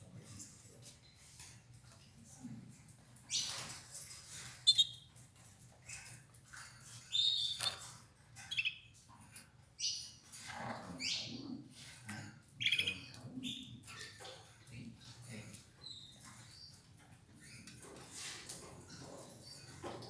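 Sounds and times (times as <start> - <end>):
canaries chirping: 0.1 - 20.0.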